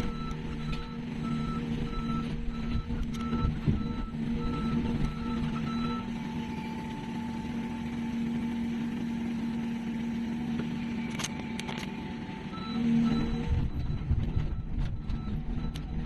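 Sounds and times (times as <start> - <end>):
reversing alarm beeping: 0.0 - 9.0, 12.3 - 16.0
diesel engine running: 0.0 - 16.0.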